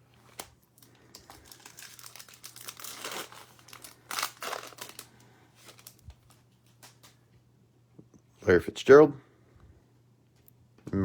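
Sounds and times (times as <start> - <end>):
wrapper crinkling and tearing: 0.2 - 7.2.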